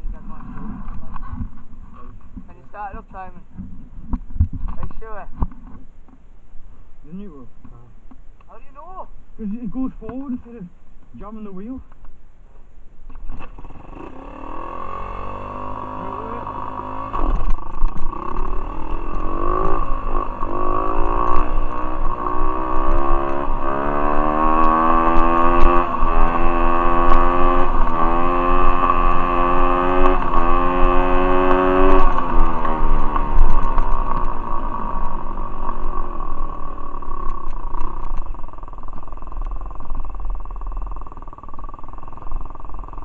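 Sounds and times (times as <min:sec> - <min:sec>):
motorbike engine accelerating: 0:00.0 - 0:05.5, 0:13.1 - 0:43.0.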